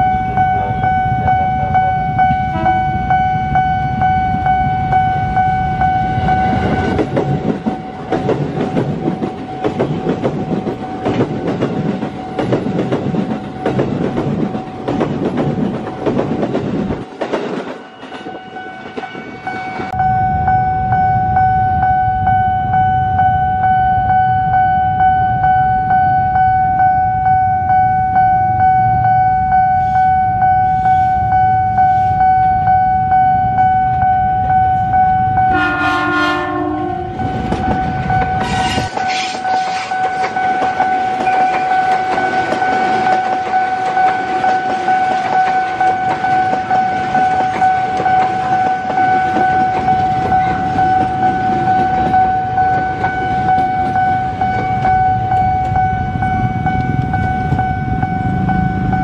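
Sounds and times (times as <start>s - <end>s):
level-crossing alarm: 0.0s - 59.0s
train horn: 2.2s - 3.2s, 30.7s - 31.2s, 35.4s - 37.5s
train wheels clattering: 6.4s - 20.0s, 37.2s - 55.8s.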